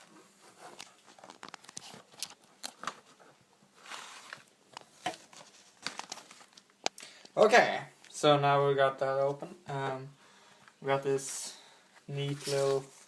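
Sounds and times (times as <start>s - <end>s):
packaging rustle: 0.7s - 3.2s, 3.8s - 6.7s.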